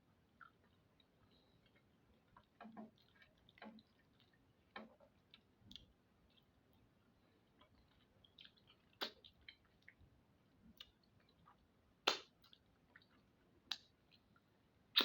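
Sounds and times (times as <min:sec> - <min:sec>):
wet mouth smacks while chewing: 0:07.6 - 0:10.0, 0:10.8 - 0:13.9.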